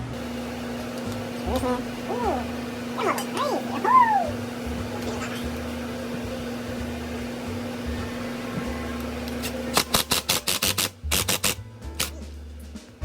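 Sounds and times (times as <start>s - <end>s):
steady hum: 0.0s - 10.4s.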